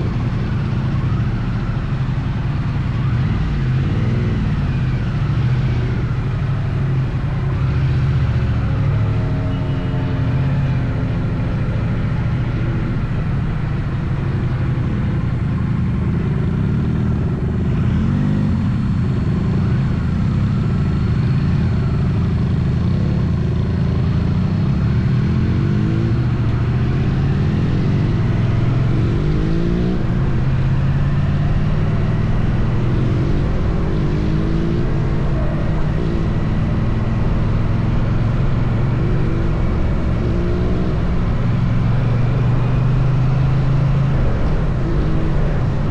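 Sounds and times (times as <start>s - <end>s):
motorcycle engine at road speed: 0.0s - 45.9s
wind noise: 26.1s - 45.9s.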